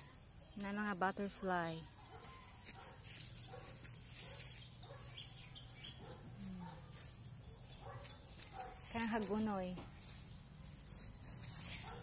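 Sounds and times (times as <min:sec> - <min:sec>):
high falling bird chirps: 0:03.8 - 0:12.0.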